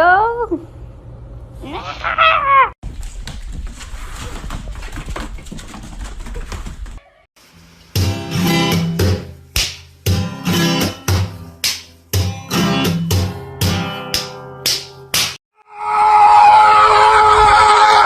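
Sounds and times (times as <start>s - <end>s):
strummed acoustic guitar: 10.1s - 11.5s.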